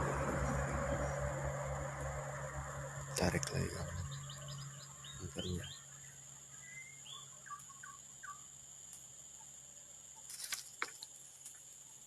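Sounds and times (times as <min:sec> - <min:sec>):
high insect drone: 0:00.0 - 0:12.0
bird chirps: 0:03.1 - 0:08.6.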